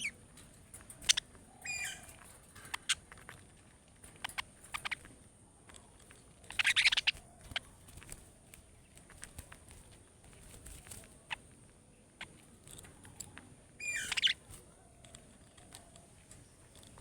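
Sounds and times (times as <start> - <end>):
parrots chirping: 0.0 - 0.2, 0.8 - 3.3, 4.1 - 5.1, 6.4 - 7.8, 13.8 - 14.5
rapid chattering chirps: 0.0 - 3.2, 4.1 - 5.3, 6.1 - 11.5, 13.8 - 14.5
parrot clicks and peeps: 0.0 - 3.4, 4.0 - 9.9, 12.2 - 17.0.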